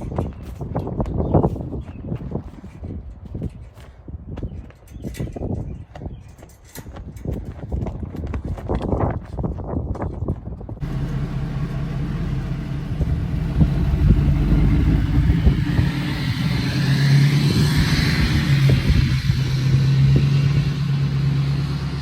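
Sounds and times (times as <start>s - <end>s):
wind buffeting microphone: 0.0s - 22.0s
road noise: 10.8s - 22.0s
vehicle engine running: 10.8s - 22.0s.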